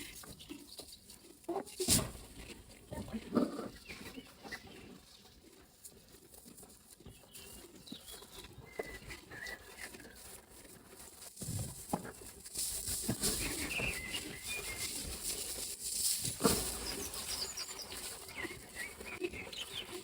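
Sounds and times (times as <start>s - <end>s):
hissing rustle: 0.0s - 20.0s
light rustles and knocks: 11.2s - 18.6s
faint bird chirps: 13.4s - 15.2s, 16.7s - 20.0s.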